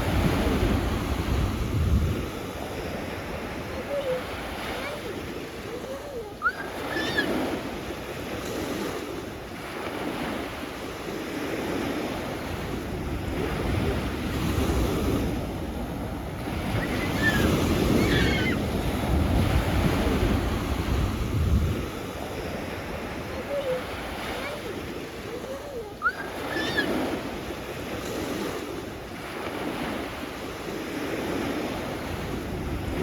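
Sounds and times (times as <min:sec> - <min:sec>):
wind buffeting microphone: 0:00.0 - 0:05.9, 0:11.8 - 0:25.6
sea waves washing onto beach: 0:00.0 - 0:33.0.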